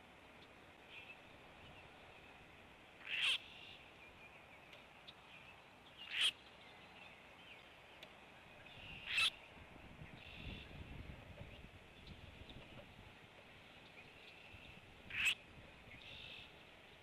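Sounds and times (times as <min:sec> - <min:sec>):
faint bird chirping: 0:00.2 - 0:12.8, 0:13.5 - 0:17.0
loud bird calls: 0:03.0 - 0:03.9, 0:05.9 - 0:06.4, 0:08.6 - 0:09.4, 0:14.2 - 0:16.5.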